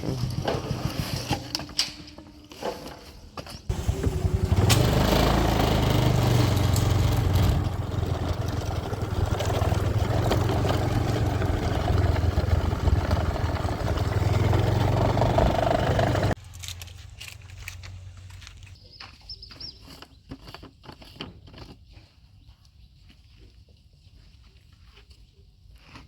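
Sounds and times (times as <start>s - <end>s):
heavy diesel engine running: 3.7s - 16.4s.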